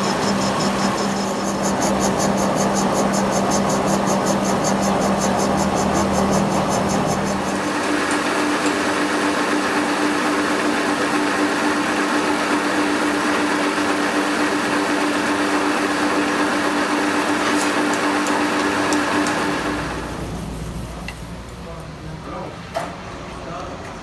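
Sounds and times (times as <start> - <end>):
machine humming and hissing: 0.0 - 21.6.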